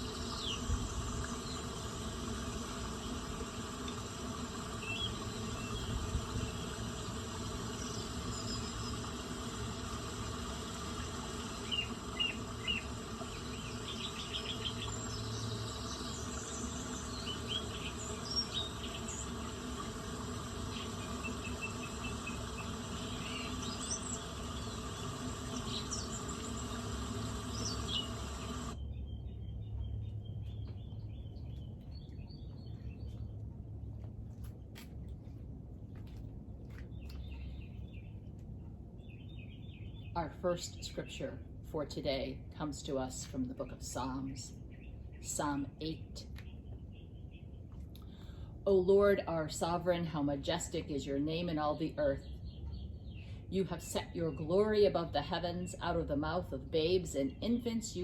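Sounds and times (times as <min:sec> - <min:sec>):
insects buzzing: 0:00.0 - 0:28.8.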